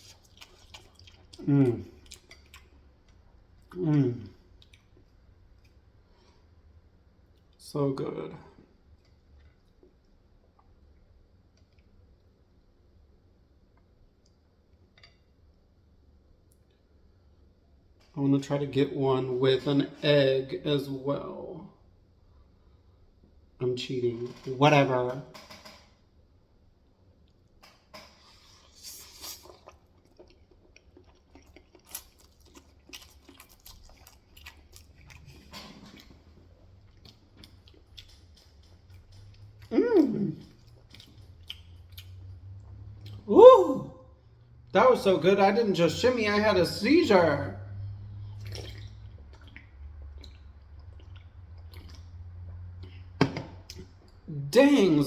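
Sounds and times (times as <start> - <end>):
wet chewing and lip-smacking: 0.0 - 3.8, 4.5 - 5.9, 28.4 - 43.3, 47.8 - 54.3
mouth clicks and lip smacks: 48.4 - 52.2.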